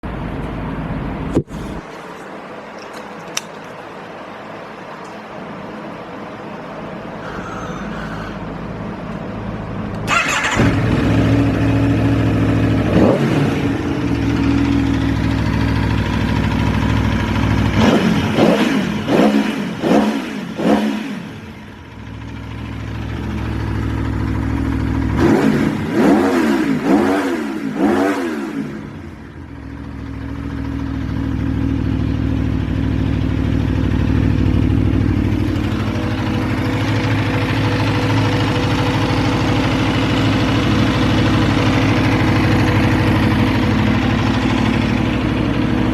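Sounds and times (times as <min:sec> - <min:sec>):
motorcycle engine starting and idling: 0:08.3 - 0:45.9
engine revs blipped: 0:10.0 - 0:14.7, 0:17.6 - 0:21.6, 0:25.1 - 0:29.1.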